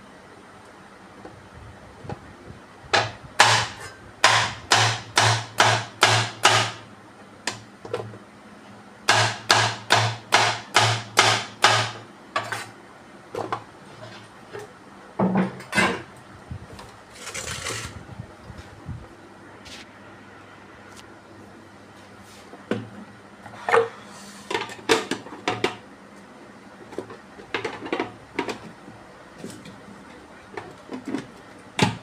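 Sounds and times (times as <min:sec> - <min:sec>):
rustling scrape: 0:17.1 - 0:18.0.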